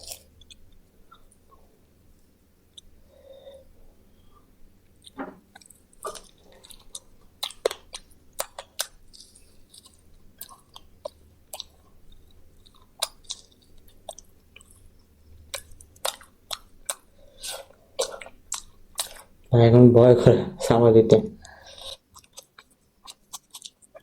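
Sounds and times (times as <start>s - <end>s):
chewing and crunching: 4.9s - 19.4s, 21.4s - 24.0s
small bones cracking: 5.1s - 10.0s.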